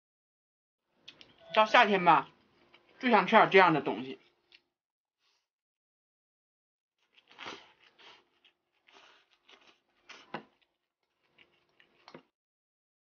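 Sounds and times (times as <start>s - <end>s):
close chewing crunches: 7.0s - 12.3s.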